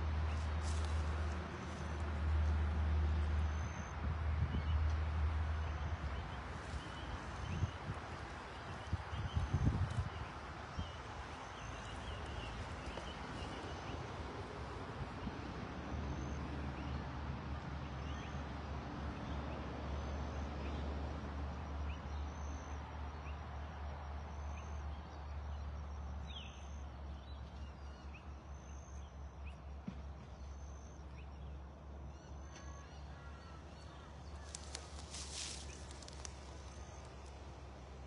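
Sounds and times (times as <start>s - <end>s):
wind rumbling on microphone: 4.0s - 5.0s, 5.6s - 15.9s.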